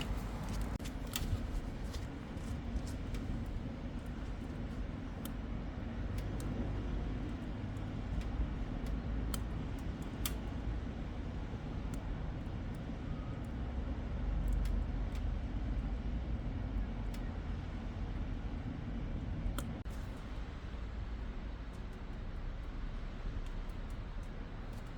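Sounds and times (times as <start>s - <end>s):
wood fire crackling and popping: 0.0s - 13.1s
low rumble of wood stove: 0.0s - 24.9s.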